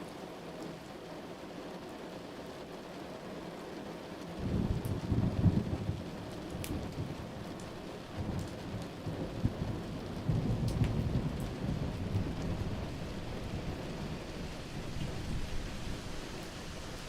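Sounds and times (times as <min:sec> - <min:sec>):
steady rain: 0:00.0 - 0:17.0
wood fire crackles: 0:02.1 - 0:17.0
rolling thunder rumble: 0:04.4 - 0:17.0.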